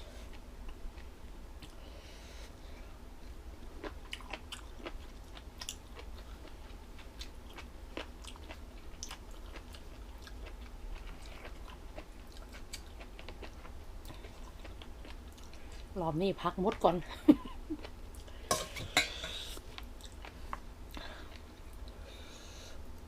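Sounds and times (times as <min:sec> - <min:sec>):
person chewing crunchy food: 0:03.7 - 0:16.0, 0:17.8 - 0:22.0.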